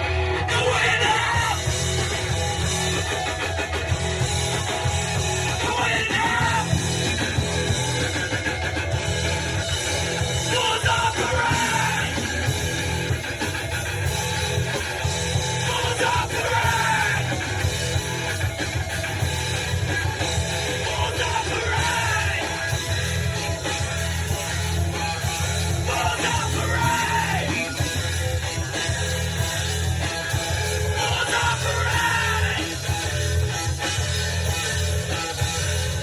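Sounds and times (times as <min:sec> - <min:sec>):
heavy rock band playing: 0:00.0 - 0:36.0
person singing: 0:05.5 - 0:06.8, 0:10.5 - 0:12.5, 0:20.8 - 0:22.8, 0:25.9 - 0:27.8, 0:31.0 - 0:32.8.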